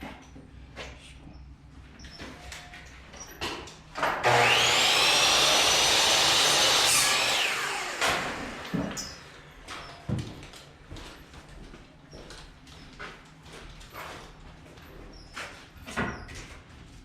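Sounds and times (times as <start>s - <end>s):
electric saw cutting wood: 4.0s - 9.4s.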